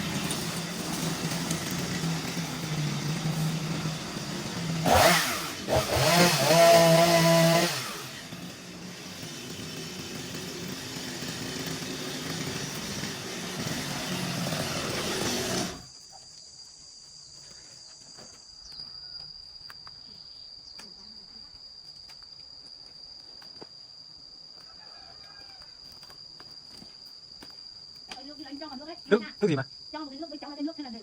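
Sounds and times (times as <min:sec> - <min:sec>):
small petrol engine running: 0:00.0 - 0:15.9
insect trill: 0:15.8 - 0:31.0.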